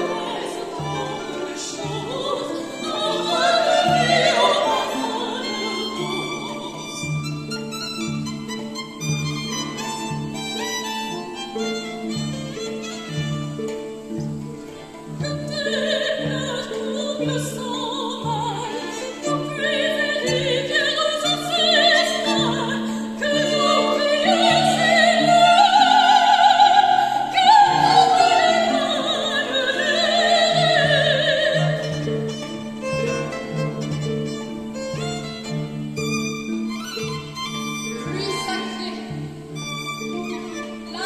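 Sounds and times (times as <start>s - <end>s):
soprano voice singing with vibrato: 0.0s - 7.4s, 14.7s - 32.9s, 40.5s - 41.0s
violin: 0.0s - 41.0s.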